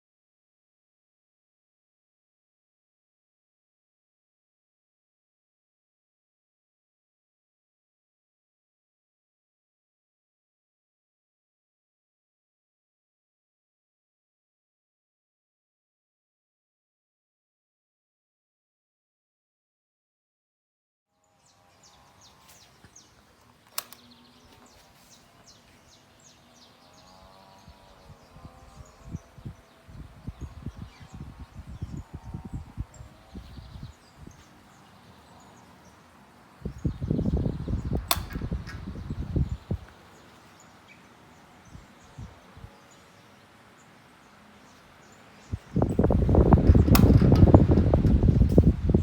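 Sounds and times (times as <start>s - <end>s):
small birds chirping: 21.2s - 49.0s
fan airflow buffeting microphone: 22.2s - 49.0s
sharp click: 22.8s - 24.7s, 37.7s - 39.0s, 46.6s - 48.7s.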